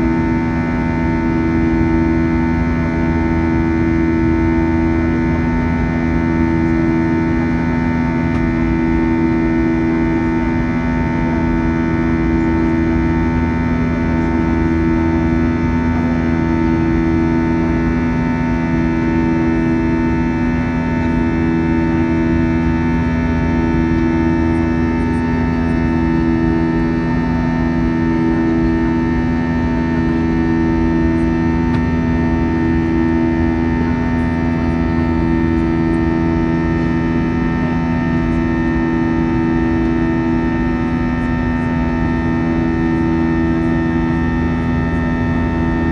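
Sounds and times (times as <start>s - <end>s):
jet engines droning: 19.2s - 45.9s.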